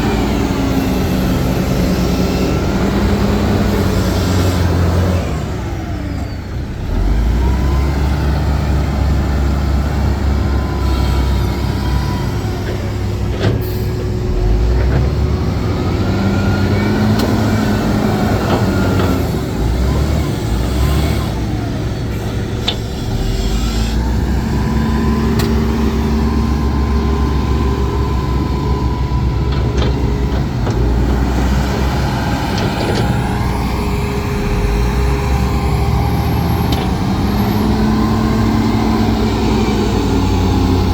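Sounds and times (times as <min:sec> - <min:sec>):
diesel machinery engine: 0:00.0 - 0:40.9.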